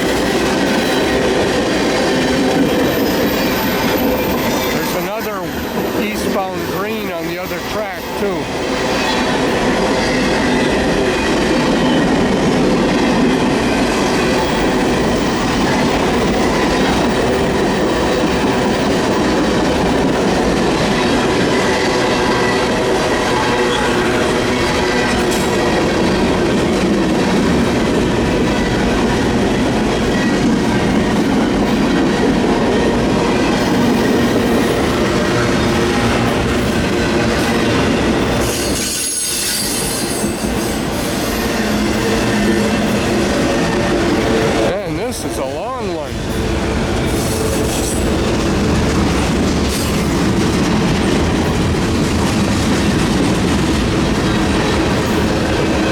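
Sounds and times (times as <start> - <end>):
steel wheels rumbling on rail: 0.0 - 55.9
thin wheel squeals: 38.4 - 40.3.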